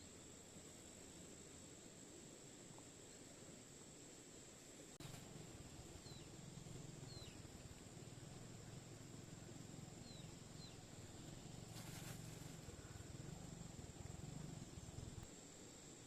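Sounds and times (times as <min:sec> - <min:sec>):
bird chirping: 0:05.0 - 0:15.2
low hum: 0:05.0 - 0:15.3.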